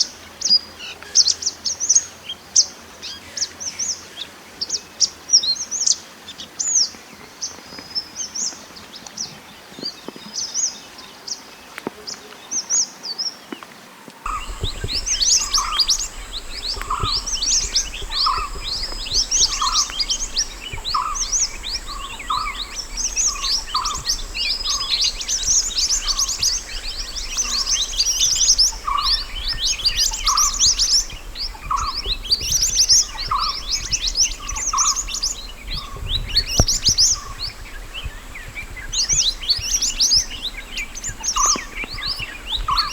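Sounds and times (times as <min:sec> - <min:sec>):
low repeating bird note: 0:14.3 - 0:35.9
birds twittering chirps: 0:14.3 - 0:42.9
faint hum: 0:14.3 - 0:42.9.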